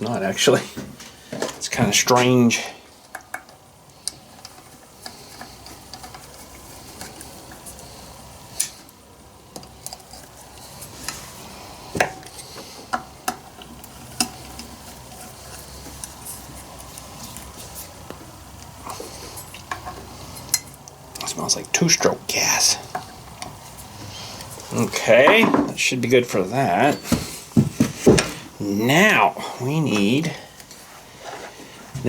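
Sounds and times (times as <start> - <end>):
light clicks and taps of tools: 3.0 - 7.8, 12.0 - 21.4.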